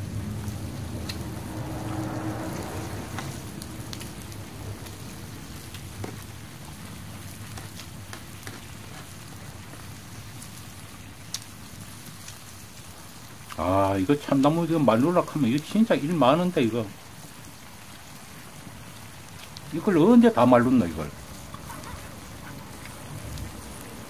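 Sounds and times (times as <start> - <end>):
meat sizzling on hot stone: 0.0 - 24.0
pops and crackles: 3.1 - 13.7, 17.2 - 19.7.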